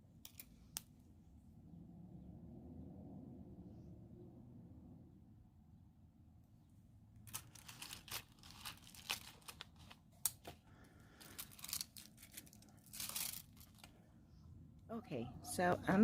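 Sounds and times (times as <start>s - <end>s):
crinkling rustling handling: 7.2s - 14.0s.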